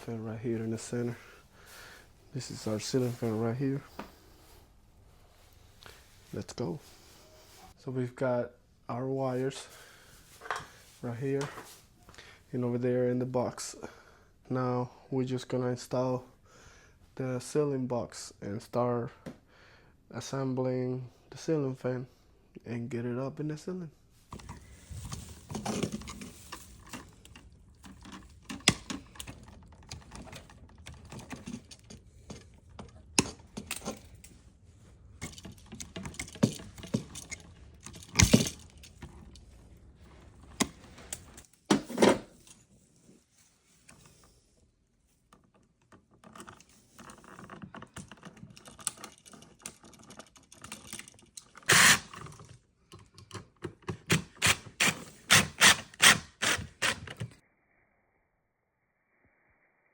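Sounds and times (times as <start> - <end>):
hand tools clicking and clattering: 24.3 - 42.6, 45.4 - 57.4.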